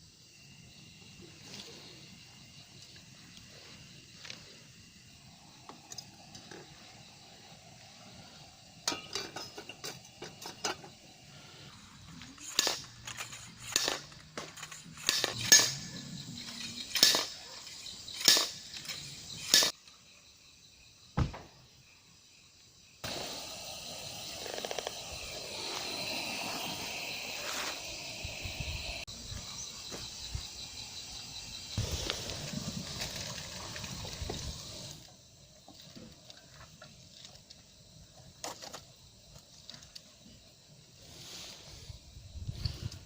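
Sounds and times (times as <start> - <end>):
metal cookware clinking and knocking: 8.8 - 10.8.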